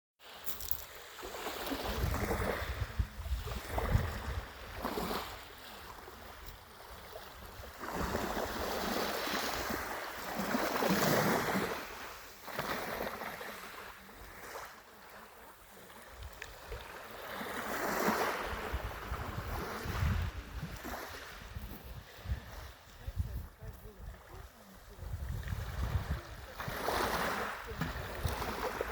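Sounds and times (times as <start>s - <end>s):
sea waves washing ashore: 0.2s - 28.9s
wind rumbling on microphone: 1.7s - 9.9s, 18.3s - 28.9s.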